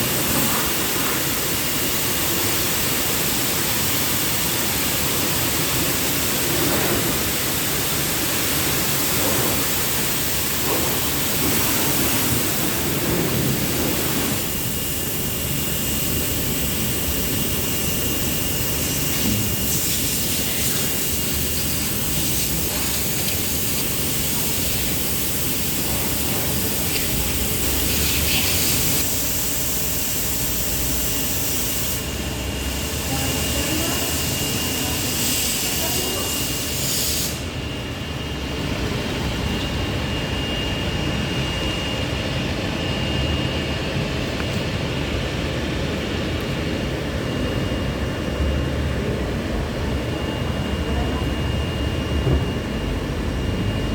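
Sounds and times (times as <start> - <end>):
water jets spraying onto car: 0.0 - 32.2.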